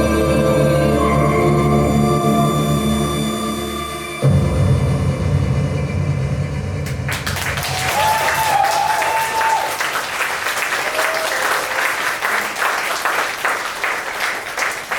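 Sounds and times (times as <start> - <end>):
music: 0.0 - 8.0
audience applauding: 6.8 - 14.9.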